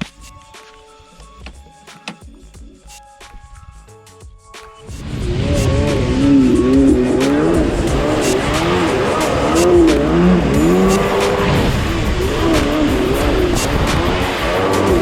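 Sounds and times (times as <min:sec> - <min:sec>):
water spray hiss: 0:04.9 - 0:15.0
wind noise: 0:04.9 - 0:15.0
jet ski engine revving: 0:05.0 - 0:15.0.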